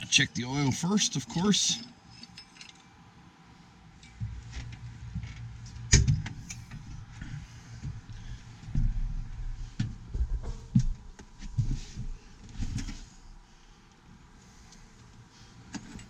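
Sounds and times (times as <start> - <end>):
low uneven rumble: 3.6 - 15.6.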